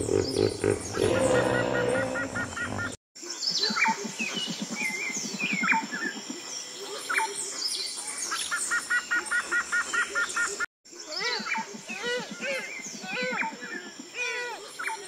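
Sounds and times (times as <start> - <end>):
birds chirping and calling: 0.0 - 15.0.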